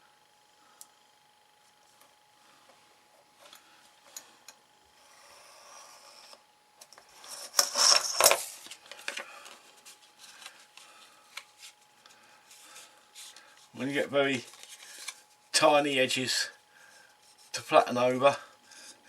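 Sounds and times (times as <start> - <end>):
card scraping and rubbing: 5.0 - 6.4, 7.2 - 8.8.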